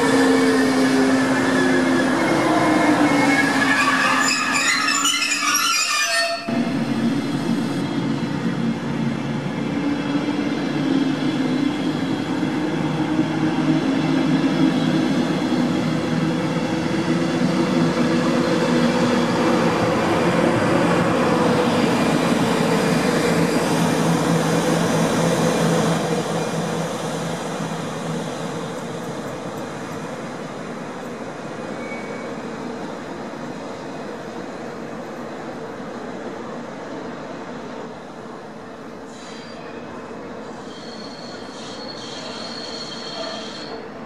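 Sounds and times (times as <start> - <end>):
train rolling past: 0.0 - 44.0.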